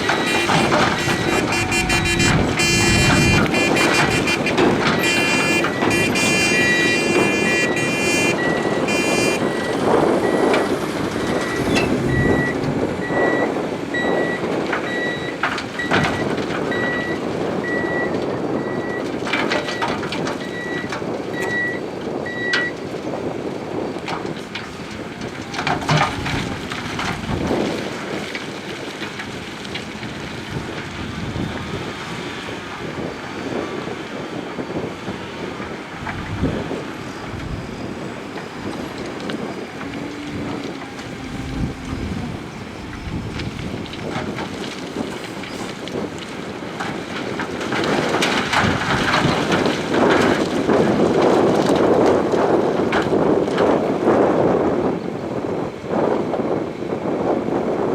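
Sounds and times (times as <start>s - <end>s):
heavy machinery rumbling: 0.0s - 53.7s
rock and gravel clattering: 35.6s - 53.9s.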